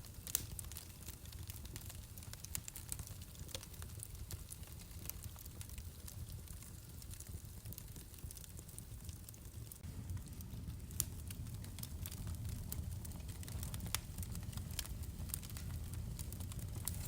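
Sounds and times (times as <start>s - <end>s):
fire popping: 0.0s - 17.0s
wood fire crackling: 0.0s - 17.0s
low rumble: 9.8s - 17.0s.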